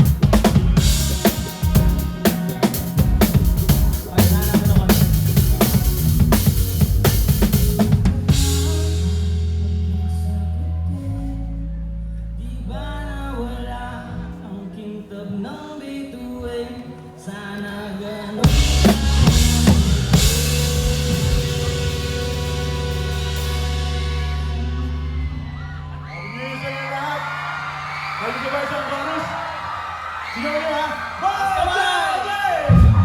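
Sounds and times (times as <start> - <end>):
drum hits: 0.0 - 9.6, 18.5 - 24.9
live band playing pop song: 0.0 - 10.5, 18.4 - 26.0.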